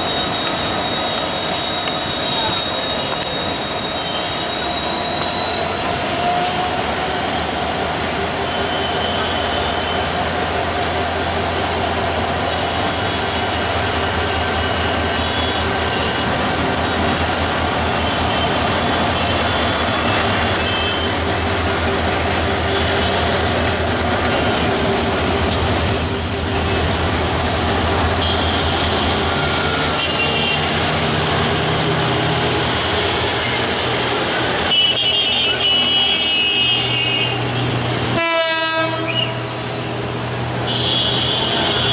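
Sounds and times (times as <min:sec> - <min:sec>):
high-pitched wheel squeal: 0:00.0 - 0:41.9.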